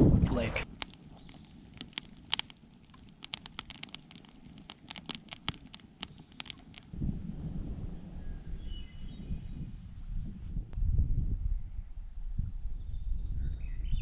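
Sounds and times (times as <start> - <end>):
sharp clicks and crackles: 0.6 - 7.0.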